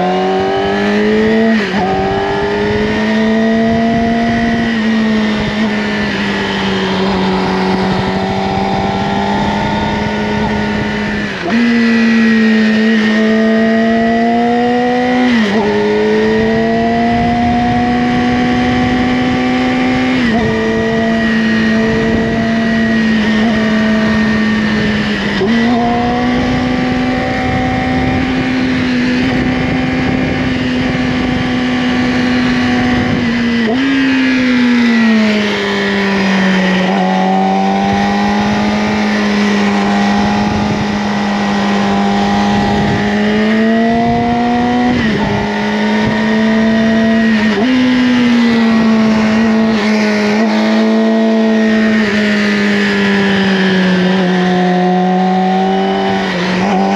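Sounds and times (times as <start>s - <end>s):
motorcycle engine cruising: 0.0s - 56.9s.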